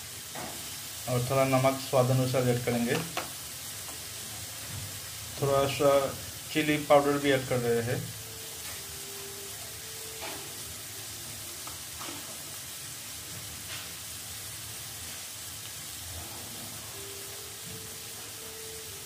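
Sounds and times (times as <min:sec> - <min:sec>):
spices sizzling in hot oil: 0:00.0 - 0:19.0.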